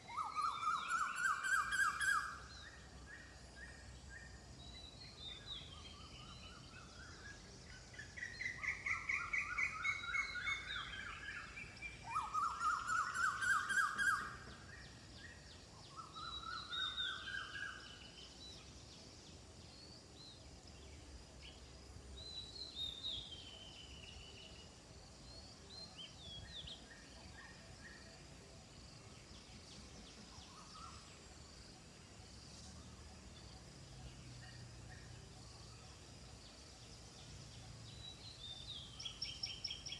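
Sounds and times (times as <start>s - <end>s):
birds rattling trills: 8.2s - 15.0s.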